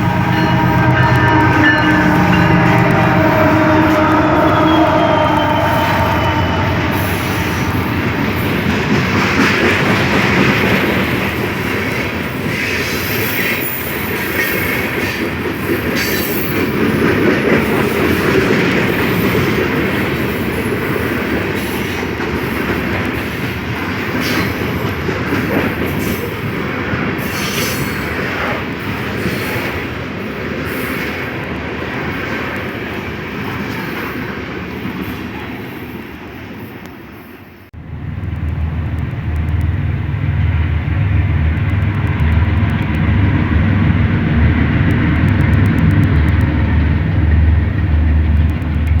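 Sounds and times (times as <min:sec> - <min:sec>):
locomotive horn: 0:00.0 - 0:09.2
freight train cars rolling on rails: 0:00.0 - 0:49.0
clacks at rail joints: 0:08.4 - 0:29.8.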